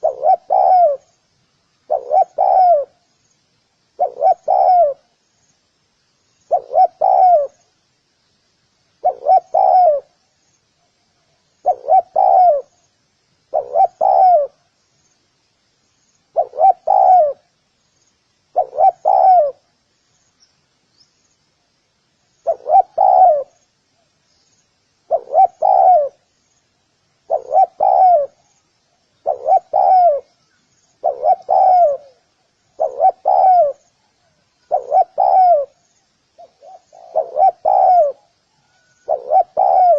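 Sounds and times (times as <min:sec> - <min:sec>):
dove cooing: 0:00.0 - 0:01.1, 0:01.8 - 0:03.0, 0:04.0 - 0:05.1, 0:06.5 - 0:07.7, 0:09.0 - 0:10.2, 0:11.6 - 0:12.8, 0:13.5 - 0:14.6, 0:16.3 - 0:17.5, 0:18.5 - 0:19.7, 0:22.4 - 0:23.6, 0:25.0 - 0:26.3, 0:27.2 - 0:28.6, 0:29.2 - 0:30.4, 0:31.0 - 0:35.8, 0:36.4 - 0:39.9
faint high chirps: 0:09.0 - 0:39.9.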